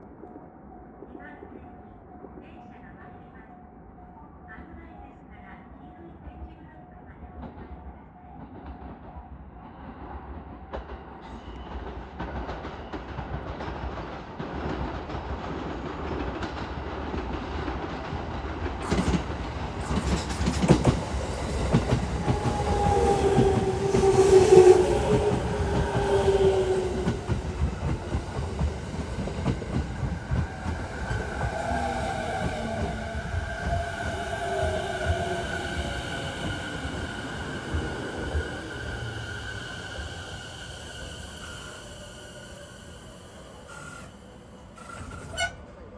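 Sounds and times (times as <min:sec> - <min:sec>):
train pulling into station: 0:06.1 - 0:45.9
steady train whine: 0:13.8 - 0:45.9.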